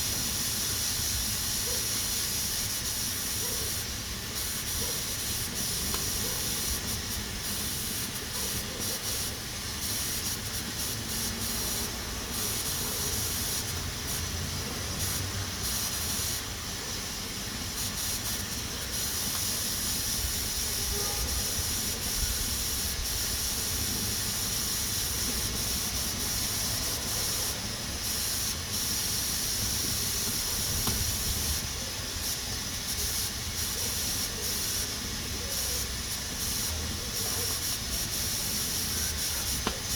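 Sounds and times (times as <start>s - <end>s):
pressure cooker hissing steam: 0.0s - 39.9s.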